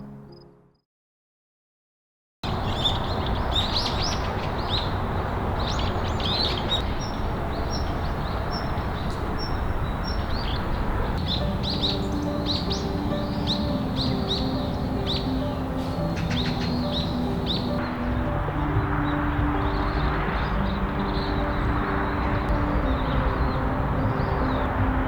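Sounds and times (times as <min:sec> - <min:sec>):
soft music: 0:00.0 - 0:00.8, 0:06.8 - 0:25.0
small birds chirping: 0:02.6 - 0:25.0
steady rushing noise: 0:06.8 - 0:25.0.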